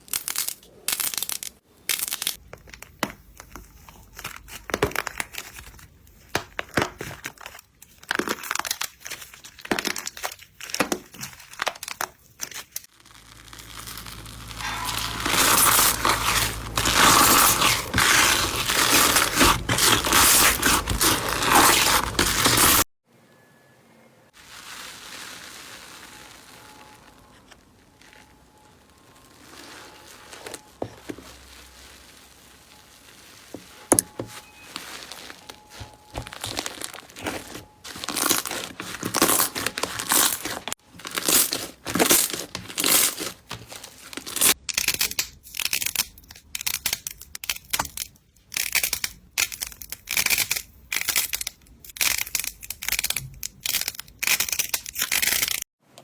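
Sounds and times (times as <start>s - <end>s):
slime crackling when squeezed: 11.4s - 22.8s, 24.4s - 45.8s.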